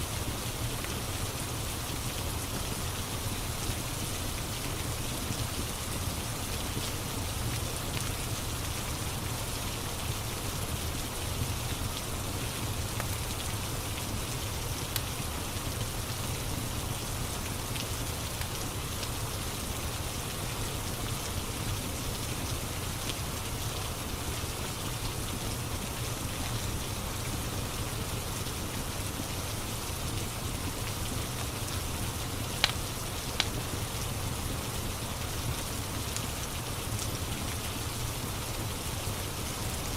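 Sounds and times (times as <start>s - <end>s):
steady rain: 0.0s - 39.9s
wood fire crackling: 30.8s - 34.1s.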